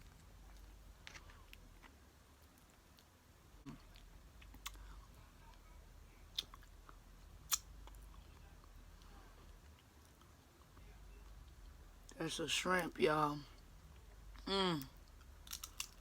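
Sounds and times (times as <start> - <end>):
person chewing crunchy chips: 0.1 - 3.1, 15.0 - 16.0.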